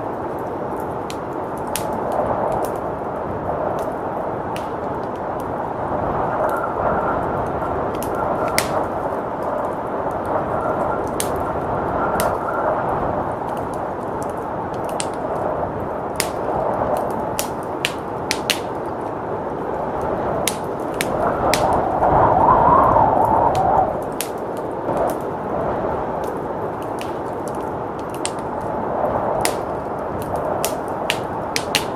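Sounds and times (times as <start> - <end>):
blizzard wind: 0.0 - 31.9
wood fire crackling and popping: 0.0 - 31.9.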